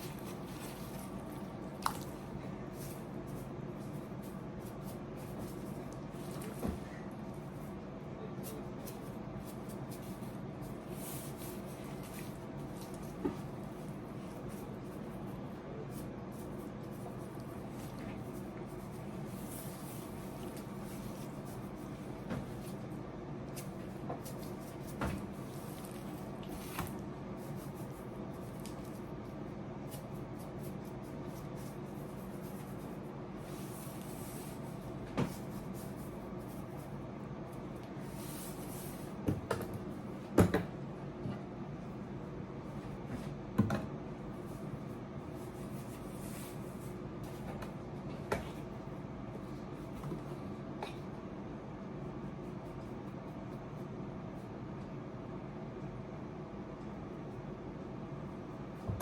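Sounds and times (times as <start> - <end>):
steady appliance hum: 0.0 - 59.0
knocks and clicks of cookware: 40.4 - 40.7.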